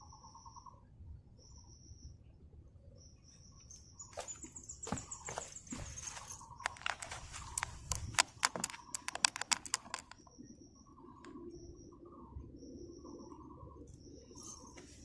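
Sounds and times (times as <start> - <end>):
sharp clicks and taps: 6.6 - 10.2.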